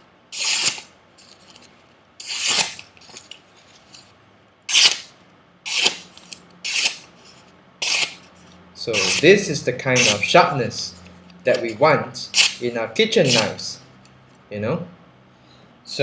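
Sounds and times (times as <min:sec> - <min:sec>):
knife slicing through paper: 0:00.4 - 0:00.9, 0:02.2 - 0:02.9, 0:04.7 - 0:05.1, 0:05.7 - 0:06.1, 0:06.7 - 0:07.0, 0:08.9 - 0:09.2, 0:12.4 - 0:12.6, 0:13.2 - 0:13.6.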